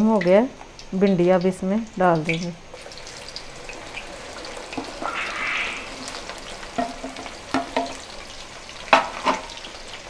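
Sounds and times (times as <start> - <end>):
oil sizzling: 0.0 - 10.0
wooden spatula knocking on metal pan: 6.8 - 8.0.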